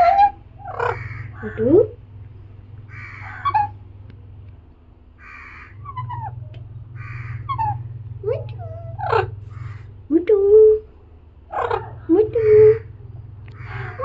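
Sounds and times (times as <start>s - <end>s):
parrot squawking: 0.0s - 1.8s, 2.9s - 3.8s, 5.2s - 6.4s, 7.0s - 9.9s, 11.5s - 12.9s, 13.6s - 14.0s.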